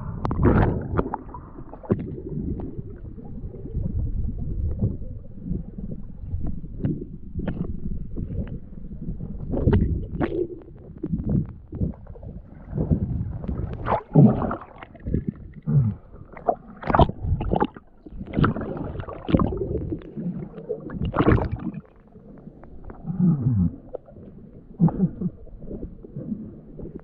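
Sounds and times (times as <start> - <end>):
water sloshing and gurgling: 0.0 - 27.0
splashes and knocks in water: 16.4 - 20.0, 20.9 - 21.8.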